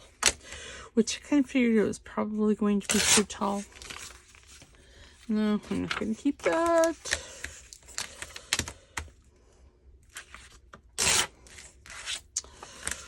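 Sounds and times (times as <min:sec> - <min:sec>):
paper tearing: 0:02.8 - 0:04.3, 0:10.1 - 0:13.0
paper rustling: 0:02.9 - 0:08.8.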